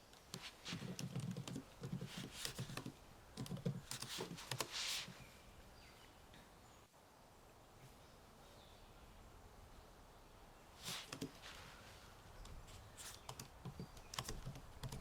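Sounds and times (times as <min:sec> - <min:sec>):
typing on computer keyboard: 0:00.8 - 0:04.7, 0:13.2 - 0:15.0.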